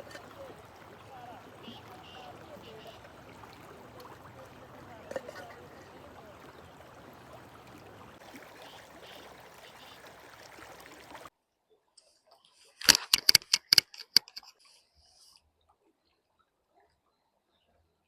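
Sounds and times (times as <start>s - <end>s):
sharp clicks: 12.8s - 14.5s.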